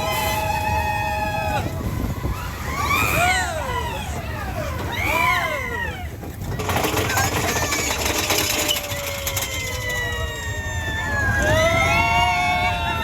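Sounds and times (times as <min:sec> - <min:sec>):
roller coaster rattling on track: 0:00.0 - 0:13.0
long falling cry: 0:07.6 - 0:13.0.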